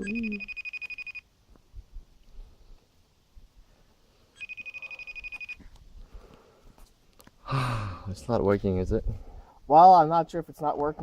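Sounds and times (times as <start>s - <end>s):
phone ringing tone: 0.0s - 1.2s, 4.4s - 5.6s.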